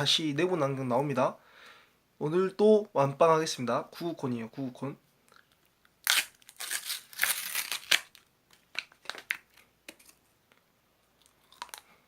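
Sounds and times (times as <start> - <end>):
paper wrapper crinkling and tearing: 6.0 - 10.2.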